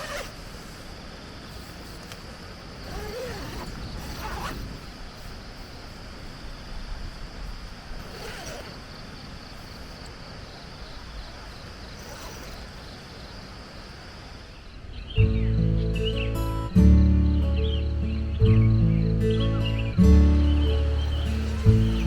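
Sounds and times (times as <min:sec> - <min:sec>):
wind rumble on microphone: 0:02.7 - 0:08.0
acoustic guitar music: 0:15.2 - 0:22.0.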